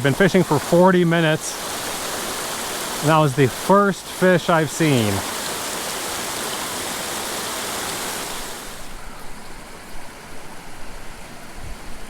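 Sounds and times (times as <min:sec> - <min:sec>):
creek running over rocks: 0:00.0 - 0:11.2.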